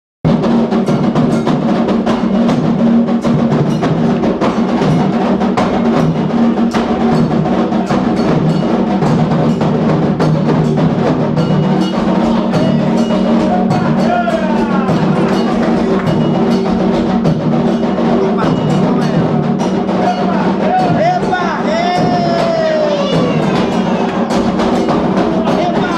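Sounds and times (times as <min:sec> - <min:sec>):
hand drums fast rhythm: 0:00.2 - 0:25.9
clanging bell pattern: 0:00.3 - 0:25.9
voices singing: 0:11.8 - 0:16.5, 0:18.0 - 0:25.9.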